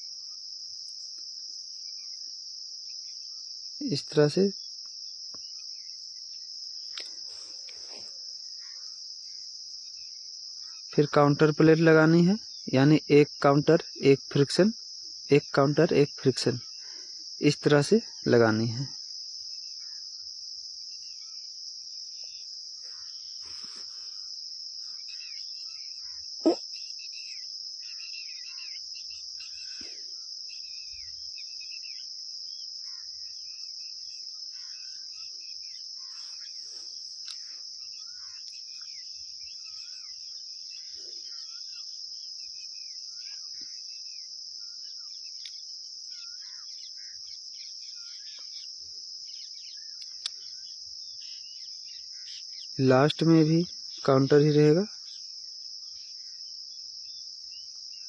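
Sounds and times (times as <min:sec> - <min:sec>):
crickets chirring: 0:00.0 - 0:58.0
faint bird chirps: 0:20.9 - 0:58.0.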